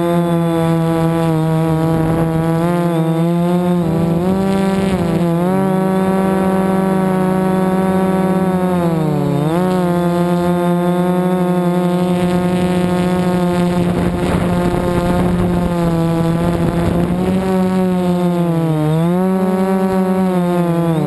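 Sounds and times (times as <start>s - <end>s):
drone motors whining: 0.0s - 21.0s
wind buffeting microphone: 12.0s - 18.0s.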